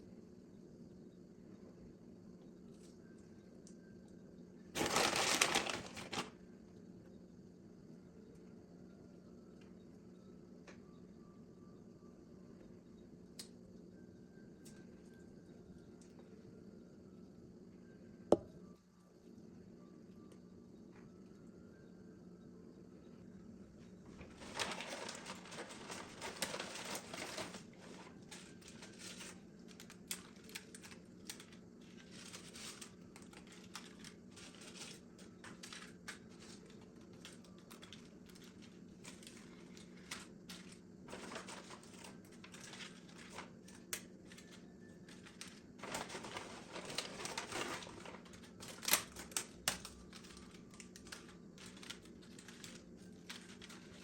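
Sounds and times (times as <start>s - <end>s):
steady low hum: 0.0s - 4.8s, 6.3s - 54.0s
rapid clicking and crinkling: 4.8s - 6.4s, 24.1s - 54.0s.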